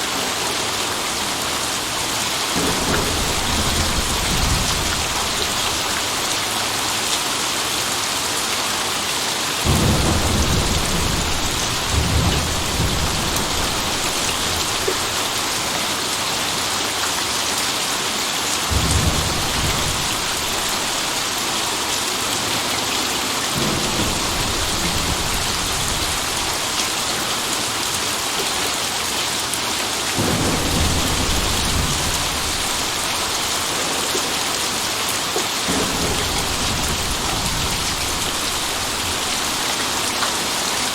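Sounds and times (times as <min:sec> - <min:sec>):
heavy rain: 0:00.0 - 0:40.9
thunder rumbling: 0:01.6 - 0:06.5, 0:09.6 - 0:15.9, 0:18.7 - 0:21.8, 0:23.6 - 0:27.7, 0:30.2 - 0:40.1.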